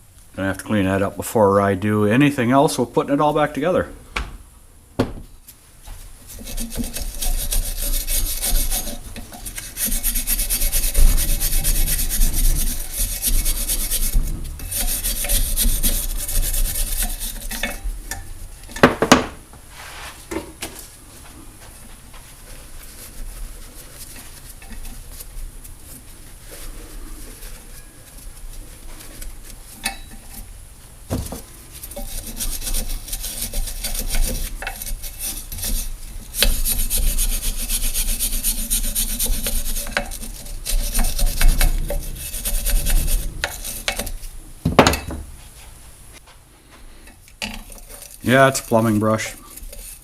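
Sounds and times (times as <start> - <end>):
brush scrubbing metal: 5.5 - 18.8, 21.2 - 44.5, 46.6 - 50.0
sharp knock: 18.8 - 19.4.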